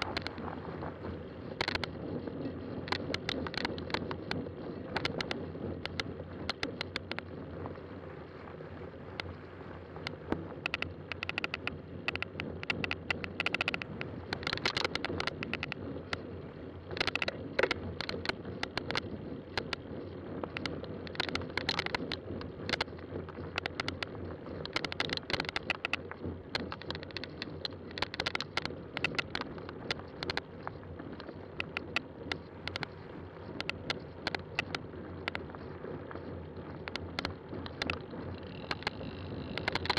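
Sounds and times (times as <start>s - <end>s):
bike clicks and rattles: 0.0s - 39.9s
bike tyre noise on trail: 0.0s - 39.9s
wind noise: 0.0s - 39.9s.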